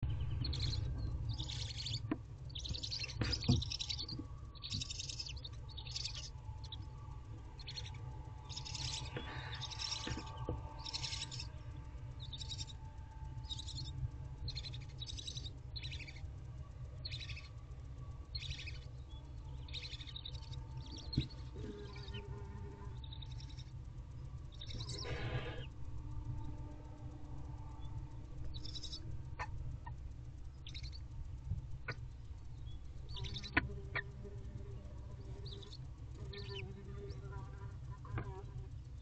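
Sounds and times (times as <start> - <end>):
steady low hum: 0.0 - 39.0
owl chicks hissing begging calls: 0.5 - 2.0, 2.6 - 6.8, 7.6 - 11.5, 12.2 - 12.8, 24.6 - 25.8.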